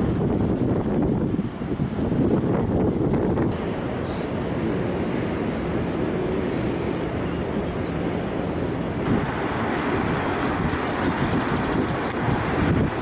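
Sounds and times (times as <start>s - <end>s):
boat engine hum: 0.0s - 13.0s
water rushing along hull: 0.0s - 13.0s
wind buffeting microphone: 0.0s - 13.0s.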